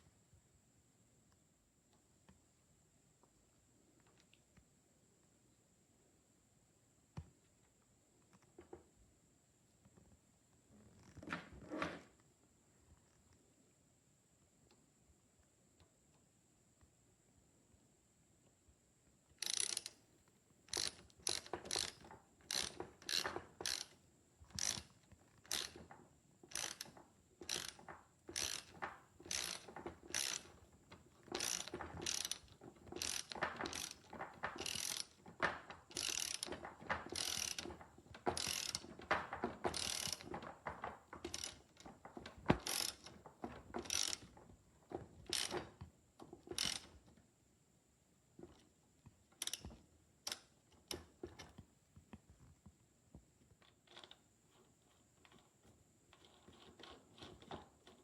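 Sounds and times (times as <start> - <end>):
ratchet clicking and rasping: 19.4 - 20.0, 20.7 - 25.9, 26.5 - 30.6, 31.2 - 41.9, 42.5 - 43.2, 43.8 - 44.3, 45.3 - 45.7, 46.5 - 46.9.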